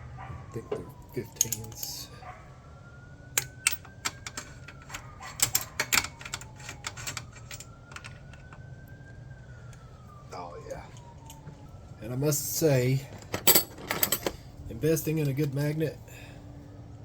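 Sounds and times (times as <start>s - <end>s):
faint siren wailing: 0.0s - 17.0s.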